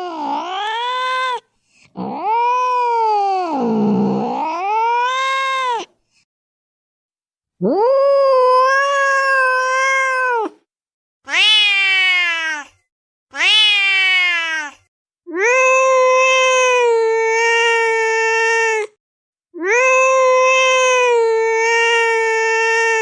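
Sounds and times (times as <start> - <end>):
cat meowing: 0.0 - 1.4, 2.0 - 5.9, 7.6 - 10.6, 11.3 - 18.9, 19.6 - 23.0.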